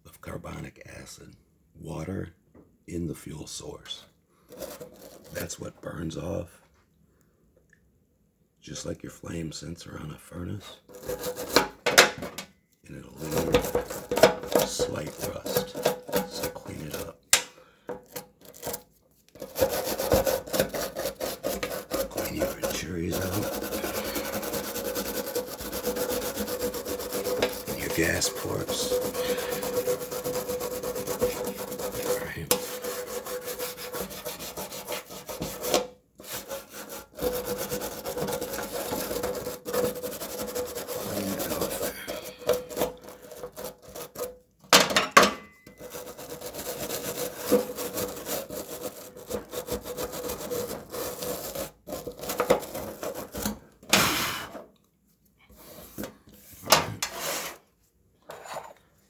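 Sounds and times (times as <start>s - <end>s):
brush scrubbing metal burner: 4.5s - 5.6s, 10.9s - 12.4s, 13.2s - 54.7s, 55.6s - 57.6s.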